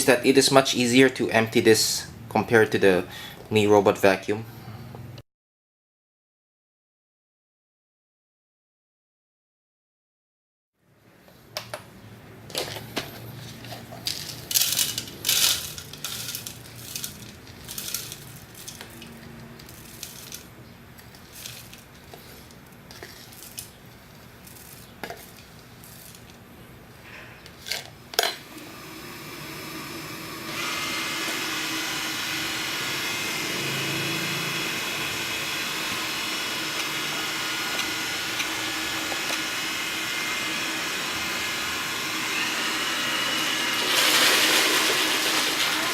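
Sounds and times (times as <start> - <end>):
vacuum motor running: 28.4 - 45.9.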